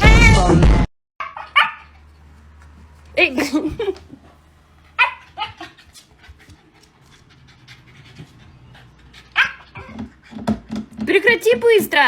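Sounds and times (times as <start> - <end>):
dog yelping: 1.2 - 2.1, 4.8 - 6.1, 7.9 - 10.5
dog panting: 1.7 - 11.1.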